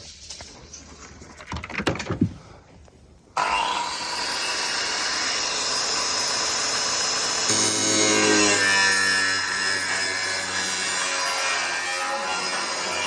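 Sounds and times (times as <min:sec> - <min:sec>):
knocks and clatter: 0:01.1 - 0:02.4
power tool whining: 0:03.4 - 0:13.0.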